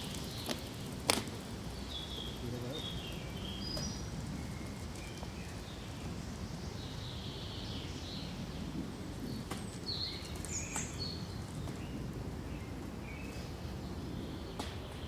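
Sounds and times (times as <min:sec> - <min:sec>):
sharp ticks: 0:00.0 - 0:01.5
birds chirping: 0:00.0 - 0:15.0
wind in pine trees: 0:00.0 - 0:15.0.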